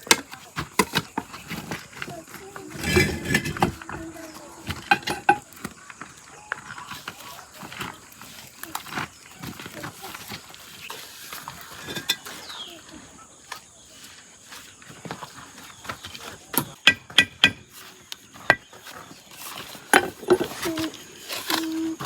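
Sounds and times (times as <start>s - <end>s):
hard objects clinking: 0.0s - 6.0s, 11.4s - 12.6s, 19.4s - 22.0s.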